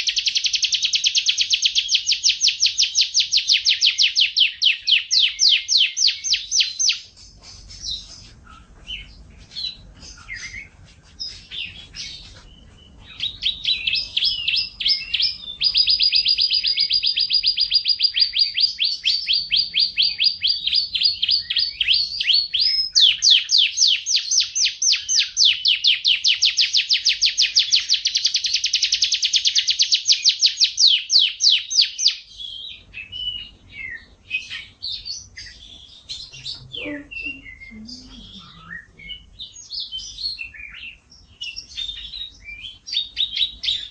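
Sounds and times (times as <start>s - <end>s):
canary singing trills: 0.0s - 43.9s.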